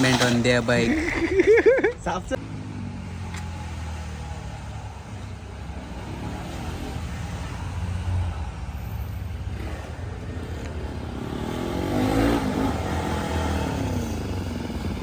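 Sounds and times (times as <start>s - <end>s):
vehicle engine humming: 0.0s - 5.9s.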